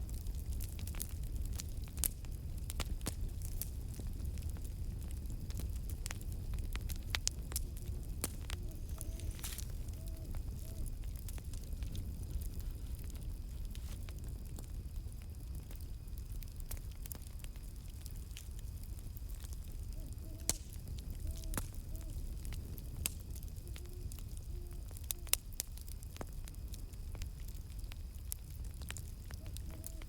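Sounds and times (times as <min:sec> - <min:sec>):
campfire crackling and popping: 0:00.0 - 0:30.0
faint owl hoots: 0:07.6 - 0:11.2, 0:19.6 - 0:22.6, 0:23.5 - 0:25.4, 0:29.3 - 0:30.0.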